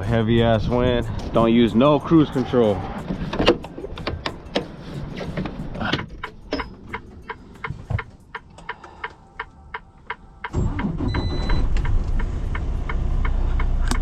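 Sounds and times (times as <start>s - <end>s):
truck cab rattling: 0.0s - 8.6s
truck engine and road rumble: 0.0s - 14.0s.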